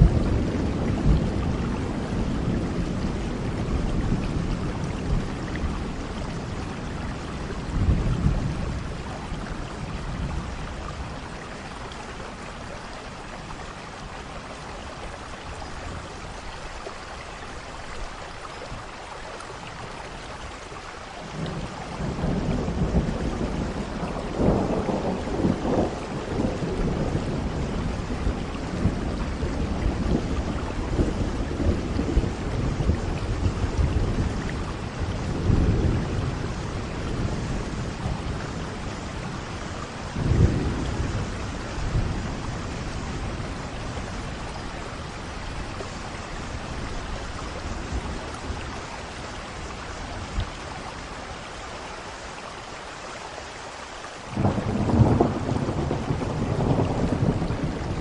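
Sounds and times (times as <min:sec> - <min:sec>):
thunder rumbling: 0:00.0 - 0:11.5, 0:21.3 - 0:50.5, 0:54.4 - 0:58.0
steady rain: 0:00.0 - 0:58.0.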